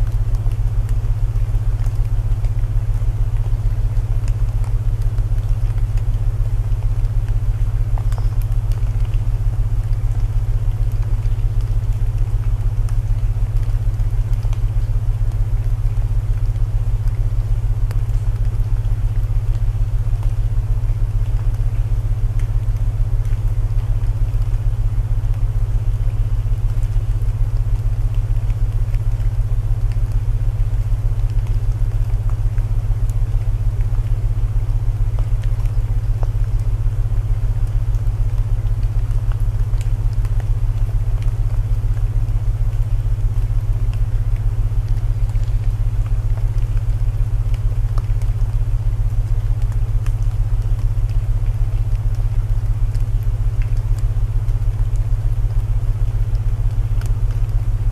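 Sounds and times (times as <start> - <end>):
burning wood crackles: 0.0 - 57.9
rain hiss: 0.0 - 57.9.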